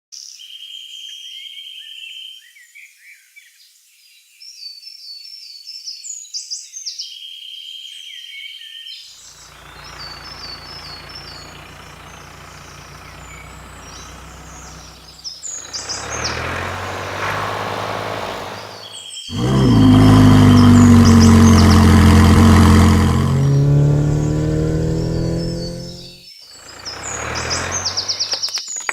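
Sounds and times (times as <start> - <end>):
vehicle engine humming: 9.4 - 28.4
birds chirping: 9.4 - 28.5.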